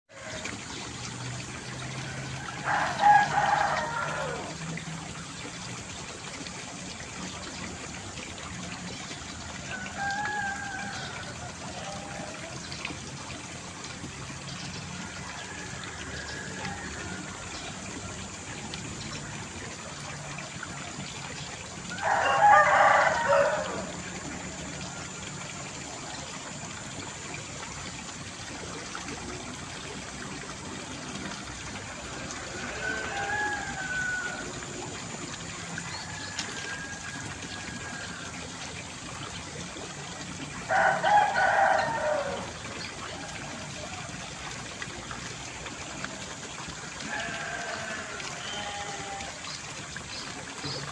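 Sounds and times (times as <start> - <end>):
rooster crowing: 2.2 - 4.6, 9.7 - 11.2, 21.9 - 23.9, 32.5 - 34.6, 40.7 - 42.5.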